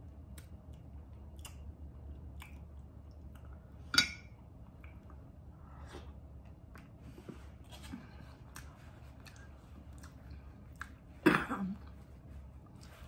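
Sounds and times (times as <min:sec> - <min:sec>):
close chewing and lip-smacking: 0:00.0 - 0:03.9, 0:08.1 - 0:11.2.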